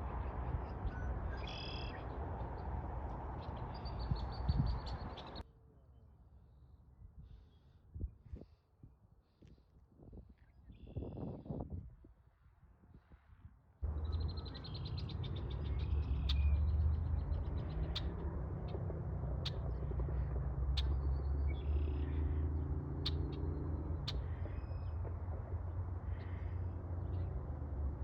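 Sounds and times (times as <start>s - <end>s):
steady low rumble: 13.8s - 28.0s
small birds trilling: 13.9s - 25.0s
sharp short bird ticks: 19.4s - 22.2s, 23.0s - 25.1s.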